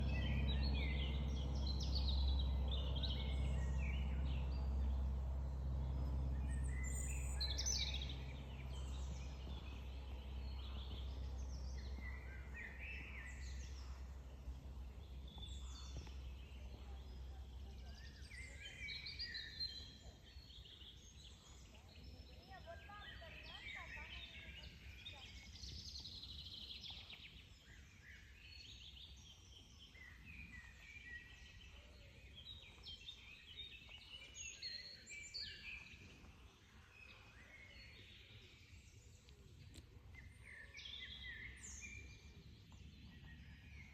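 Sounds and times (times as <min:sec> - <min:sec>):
low steady hum: 0:00.0 - 0:43.9
songbirds chirping: 0:00.0 - 0:43.9.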